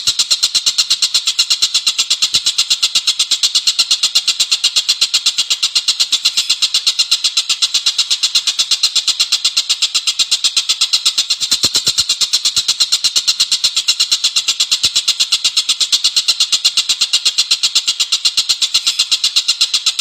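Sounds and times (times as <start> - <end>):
songbird trilling: 5.4 - 7.8, 17.9 - 20.0.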